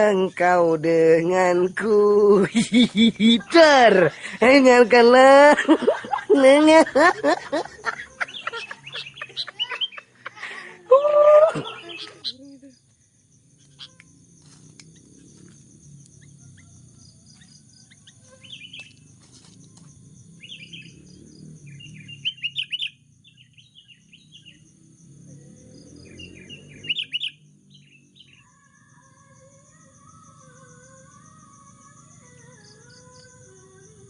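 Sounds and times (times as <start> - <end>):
bulbuls chirping: 1.3 - 10.9, 11.5 - 24.7, 25.8 - 28.4.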